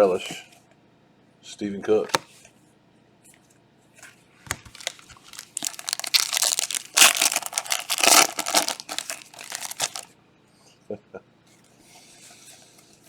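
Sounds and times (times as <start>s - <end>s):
foil wrapper crinkling: 4.5s - 10.1s.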